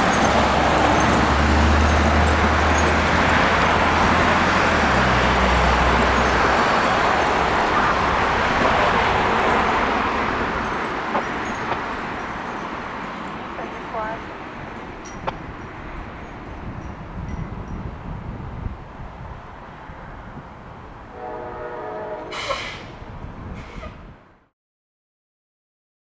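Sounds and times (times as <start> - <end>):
heavy vehicle engine drone: 0.0 - 17.2
traffic rush: 0.0 - 24.4.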